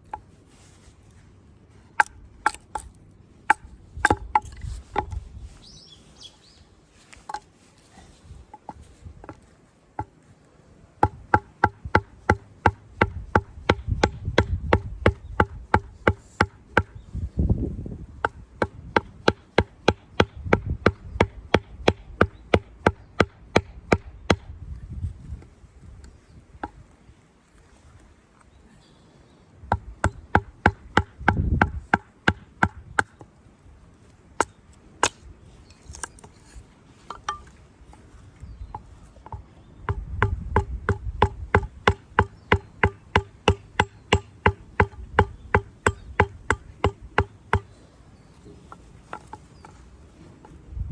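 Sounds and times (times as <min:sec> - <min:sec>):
tool chopping wood: 0:03.5 - 0:05.2, 0:11.0 - 0:17.0, 0:18.2 - 0:24.5, 0:29.7 - 0:33.2, 0:39.3 - 0:47.7.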